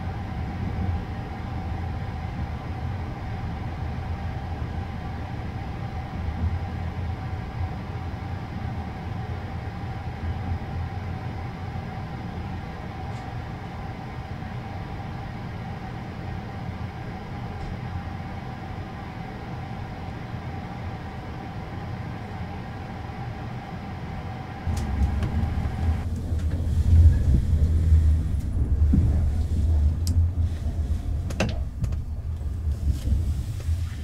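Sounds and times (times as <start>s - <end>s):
constant hum: 0.0s - 34.0s
train carriage rumbling: 0.0s - 34.0s.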